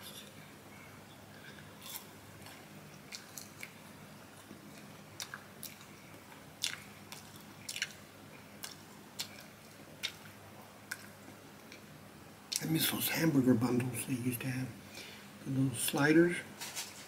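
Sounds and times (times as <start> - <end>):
person chewing and biting: 1.4 - 11.8
mouth clicks and smacks: 4.4 - 8.0, 8.6 - 11.9.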